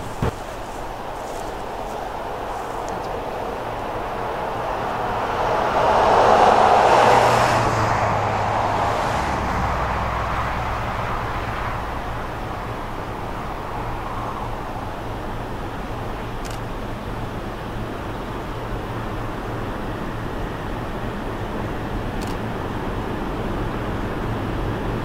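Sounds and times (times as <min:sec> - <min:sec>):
road vehicle passing: 0:00.0 - 0:16.4
diesel locomotive drone: 0:00.0 - 0:25.0.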